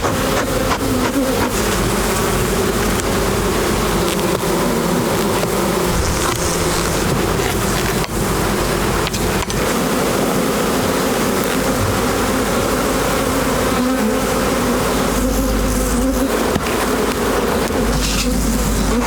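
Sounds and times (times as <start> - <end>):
honeybees buzzing: 5.8 - 7.8
fire crackle: 5.9 - 7.6.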